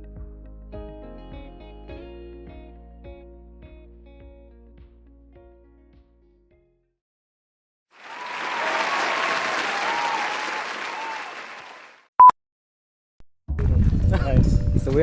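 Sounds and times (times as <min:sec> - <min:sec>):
faint whistles and cheers: 0:08.0 - 0:12.0
applause: 0:08.0 - 0:12.1.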